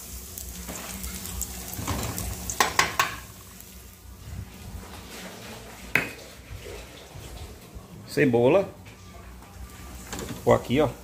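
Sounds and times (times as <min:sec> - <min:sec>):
pork cracklings sizzling in oil: 0:00.0 - 0:07.2, 0:09.6 - 0:11.0.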